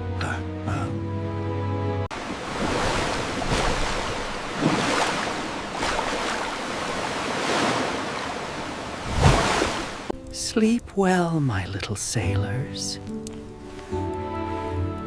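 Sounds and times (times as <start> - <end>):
sea waves washing: 2.1 - 10.2.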